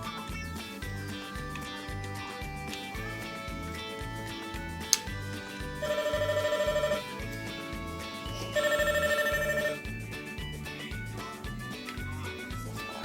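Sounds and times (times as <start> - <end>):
background music: 0.0 - 13.0
toy phone ringtone trilling: 5.8 - 7.2, 8.5 - 9.9.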